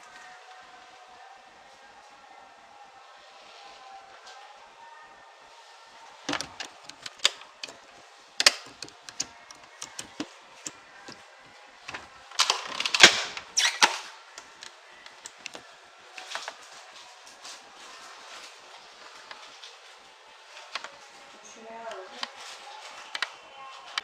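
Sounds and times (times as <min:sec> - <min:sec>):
irregular sharp clicks and knocks: 0:06.3 - 0:07.8, 0:08.4 - 0:11.2.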